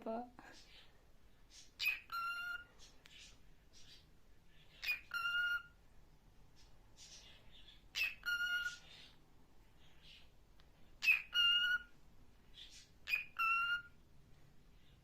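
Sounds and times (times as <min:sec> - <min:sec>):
parrot calling: 0:01.5 - 0:05.8, 0:07.0 - 0:09.2, 0:11.0 - 0:14.0.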